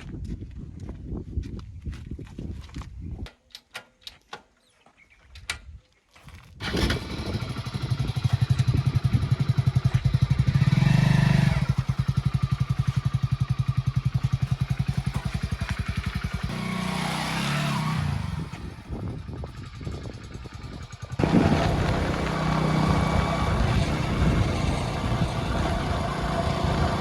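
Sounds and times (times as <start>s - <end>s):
heavy diesel engine running: 14.9s - 27.0s.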